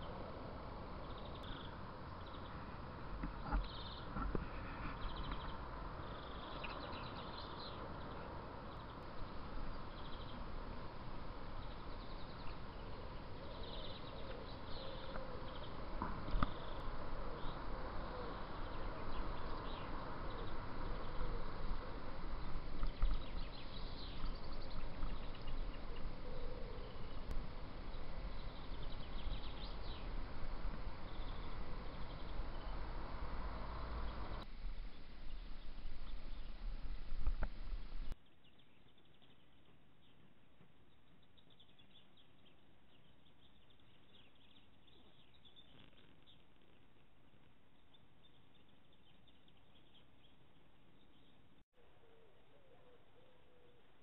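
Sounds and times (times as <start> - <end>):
low rumble: 0.0 - 38.2
background hiss: 0.0 - 54.0
small birds chirping: 0.0 - 54.0.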